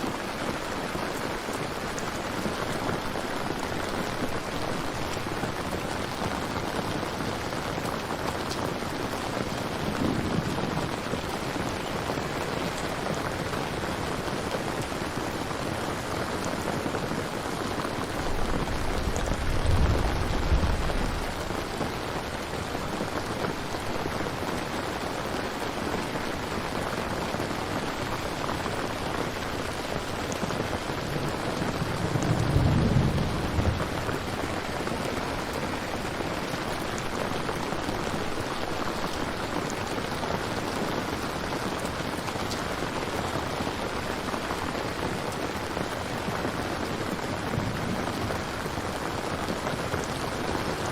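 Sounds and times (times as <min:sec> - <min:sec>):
steady rain: 0:00.0 - 0:50.9
thunder rumbling: 0:09.7 - 0:12.2, 0:17.9 - 0:22.0, 0:31.2 - 0:35.2.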